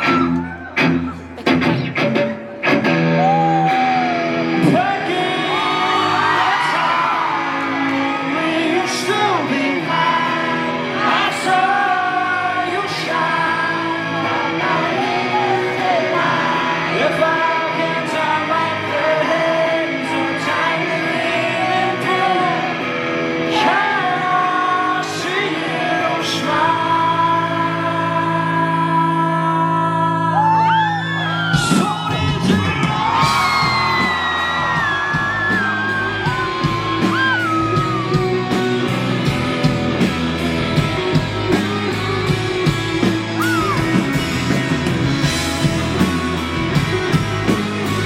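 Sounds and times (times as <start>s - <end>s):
live rock band playing: 0.0s - 48.0s
person singing: 3.2s - 39.0s, 40.8s - 48.0s
people shouting: 43.4s - 44.0s.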